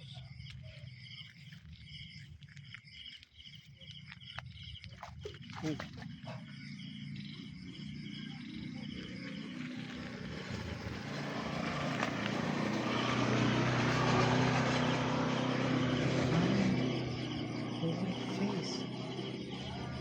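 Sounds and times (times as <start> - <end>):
vehicle engine approaching: 5.3 - 20.0.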